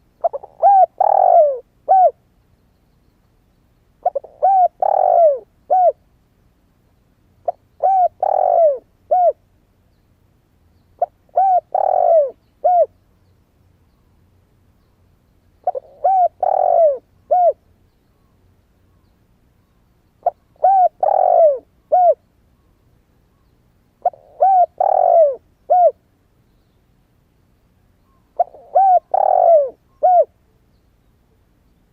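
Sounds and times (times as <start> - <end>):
dove cooing: 0.0 - 2.2, 4.0 - 6.0, 7.4 - 9.4, 11.0 - 13.0, 15.6 - 17.6, 20.2 - 22.2, 24.0 - 26.0, 28.3 - 30.4.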